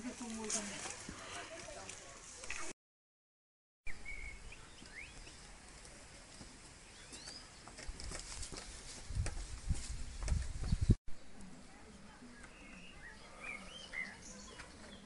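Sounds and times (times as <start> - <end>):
bird chirps: 3.9 - 5.5, 6.9 - 7.6.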